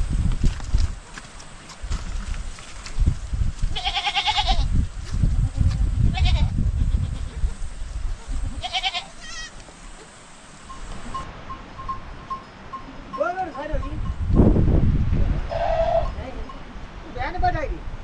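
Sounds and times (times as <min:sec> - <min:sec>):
sheep bleating: 0:03.8 - 0:04.7, 0:08.6 - 0:09.6.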